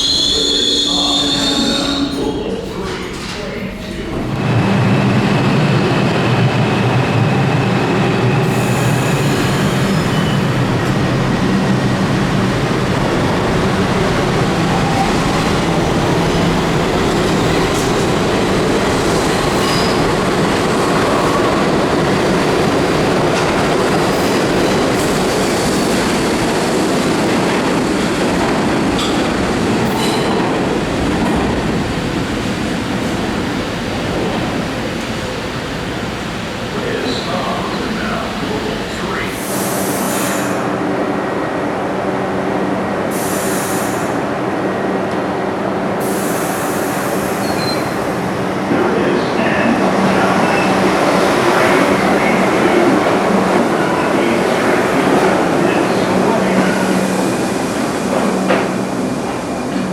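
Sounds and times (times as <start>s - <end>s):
subway train rumbling on track: 0.0s - 59.9s
high wheel squeals: 8.6s - 10.6s, 47.3s - 48.0s.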